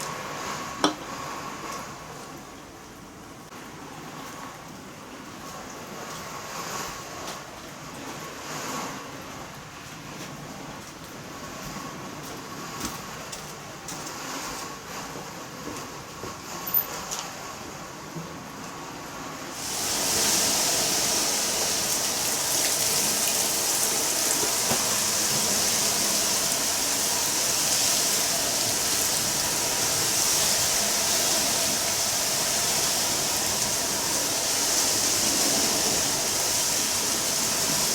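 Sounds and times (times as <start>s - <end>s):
heavy rain rushing: 19.5s - 37.9s.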